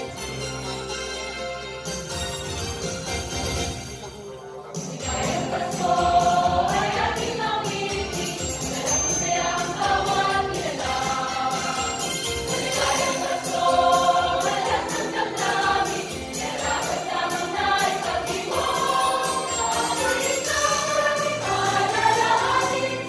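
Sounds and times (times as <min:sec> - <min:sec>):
instrumental accompaniment: 0:00.0 - 0:23.0
high percussion beat: 0:04.8 - 0:23.0
choir singing a carol: 0:04.9 - 0:23.0.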